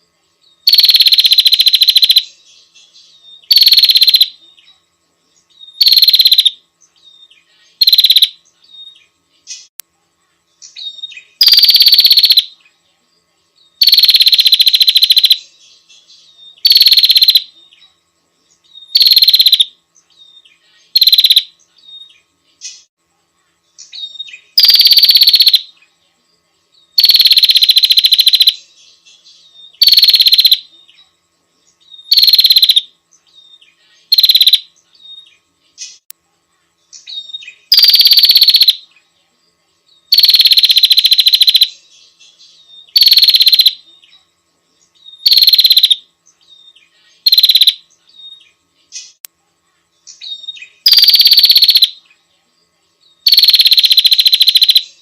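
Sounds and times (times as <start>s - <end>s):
bird harsh buzzy scolding calls: 37.2s - 38.8s.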